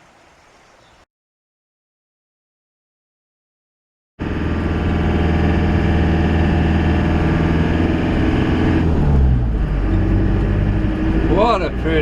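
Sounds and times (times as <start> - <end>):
van engine and road noise: 4.2 - 12.0.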